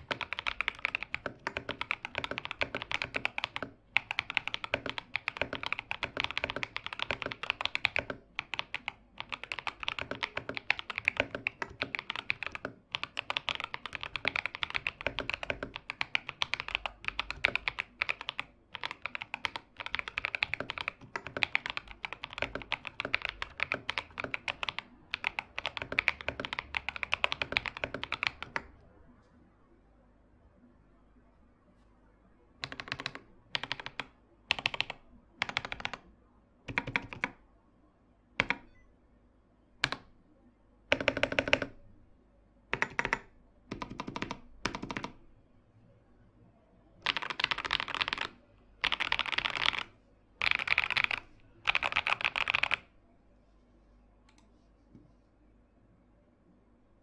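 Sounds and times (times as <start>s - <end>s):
fast typing on mechanical keyboard: 0.0s - 28.7s, 32.6s - 36.0s, 36.7s - 37.4s, 38.4s - 38.6s, 39.8s - 40.1s, 40.9s - 41.8s, 42.7s - 45.2s, 47.0s - 52.9s.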